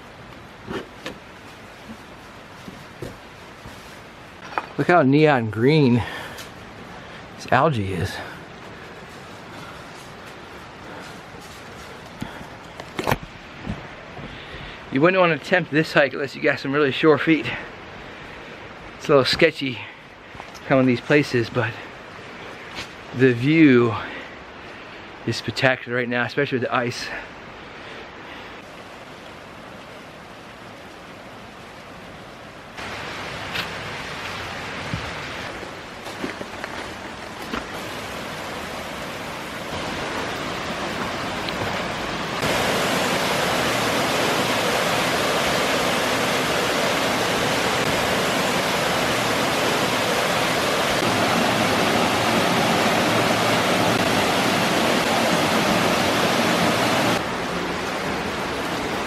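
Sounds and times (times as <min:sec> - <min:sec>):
waterfall rushing: 0:32.8 - 0:35.9, 0:37.7 - 0:59.0.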